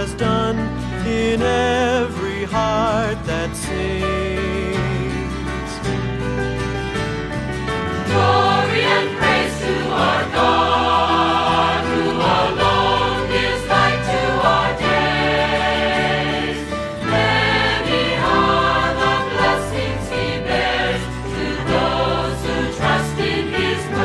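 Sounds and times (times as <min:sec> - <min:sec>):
choir singing worship song: 0:08.0 - 0:24.0.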